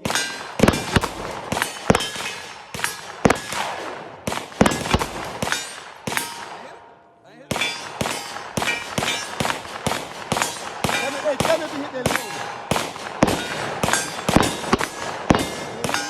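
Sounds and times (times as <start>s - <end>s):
bullets clanging on steel targets: 0.0s - 6.8s, 7.5s - 16.0s
gunshots: 0.0s - 16.0s.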